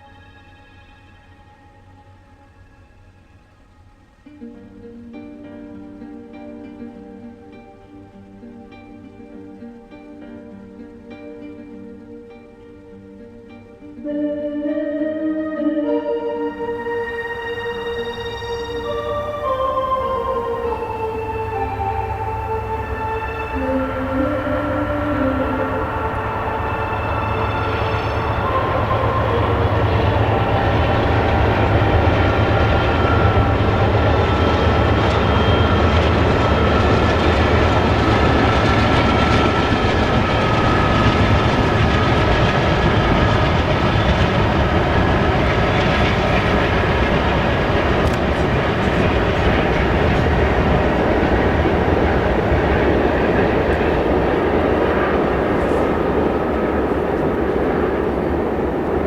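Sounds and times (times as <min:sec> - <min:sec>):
freight train rumbling on rails: 0:16.5 - 0:59.0.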